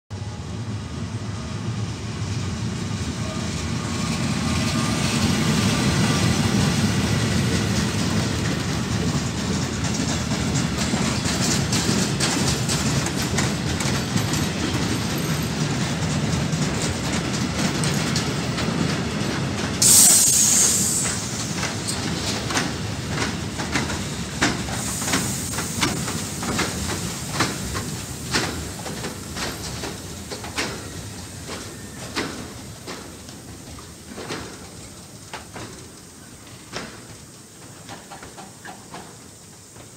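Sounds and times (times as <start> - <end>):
train wheels rumbling on track: 0.1 - 39.9
wheels clicking over rail joints: 7.3 - 19.9, 20.7 - 39.9
loud hiss: 19.8 - 39.9.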